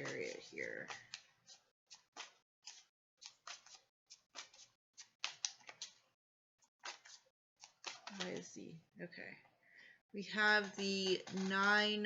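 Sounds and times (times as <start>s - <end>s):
cards being shuffled: 0.0s - 6.1s, 6.7s - 8.6s, 10.4s - 12.0s.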